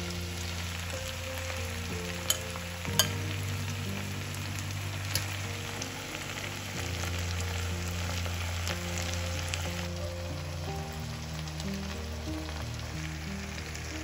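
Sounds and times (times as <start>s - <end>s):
background music with held notes: 0.0s - 14.0s
food sizzling in a skillet: 0.0s - 14.0s
spoon clicking against pan: 2.3s - 3.2s.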